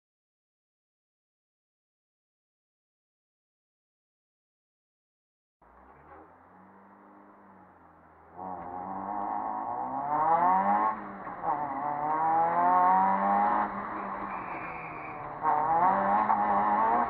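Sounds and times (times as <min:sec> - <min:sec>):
rally car engine accelerating: 0:05.6 - 0:17.0.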